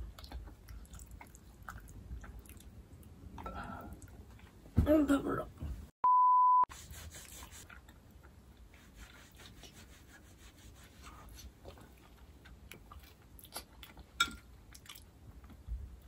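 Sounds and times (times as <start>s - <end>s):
quiet chewing: 0.0s - 4.6s, 7.6s - 8.8s, 11.3s - 15.7s.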